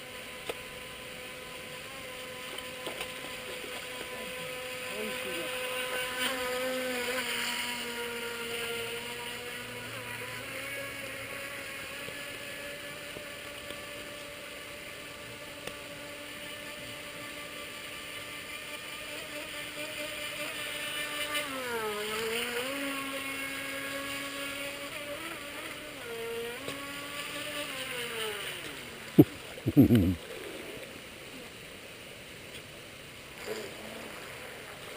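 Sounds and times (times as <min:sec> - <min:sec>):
electric motor whining: 0:00.0 - 0:30.2.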